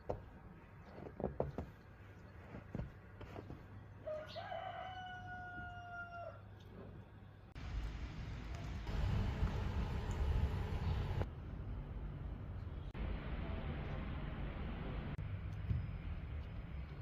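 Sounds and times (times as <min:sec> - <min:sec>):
rooster crowing: 0:04.0 - 0:06.4.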